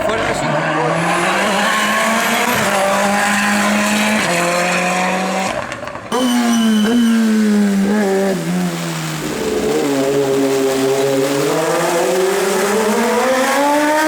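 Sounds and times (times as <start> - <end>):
race car engine accelerating: 0.2 - 14.0.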